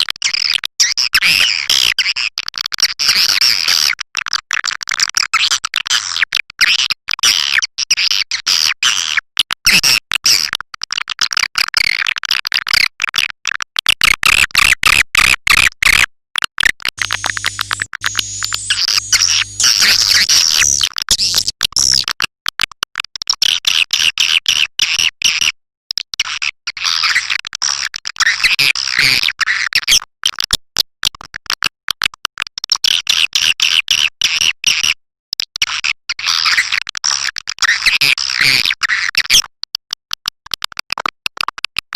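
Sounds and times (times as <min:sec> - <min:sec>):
swiftlets twittering chirps: 0:17.0 - 0:21.5.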